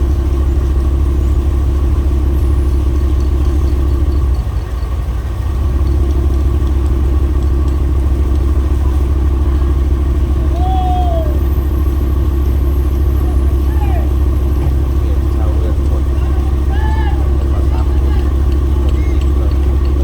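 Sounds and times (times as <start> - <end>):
boat engine rumbling: 0.0 - 20.0.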